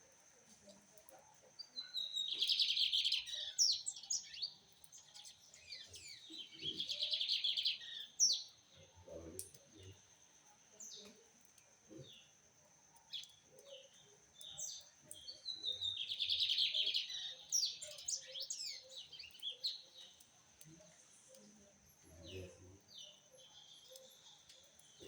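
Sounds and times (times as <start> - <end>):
bird singing trilled phrases: 1.6 - 9.9, 13.1 - 20.2.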